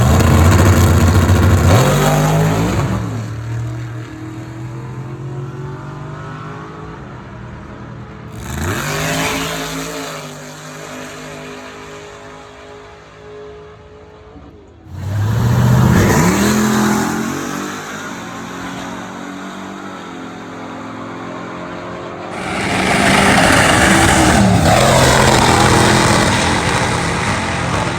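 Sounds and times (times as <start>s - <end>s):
drag car launching: 0.0s - 4.2s, 8.3s - 11.6s, 14.9s - 19.8s, 22.3s - 27.9s.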